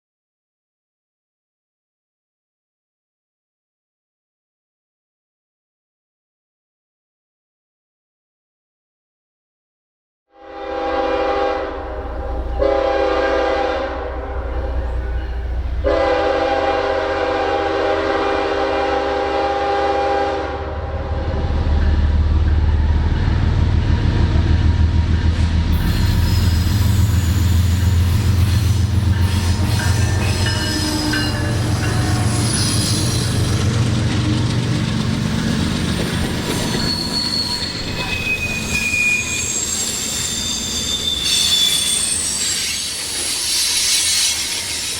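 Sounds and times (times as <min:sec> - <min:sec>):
locomotive horn blasts: 0:10.3 - 0:14.7, 0:15.8 - 0:21.6, 0:29.2 - 0:32.8
train rumbling past: 0:10.6 - 0:44.9
wheel squeal on rails: 0:25.7 - 0:33.6, 0:35.4 - 0:44.9.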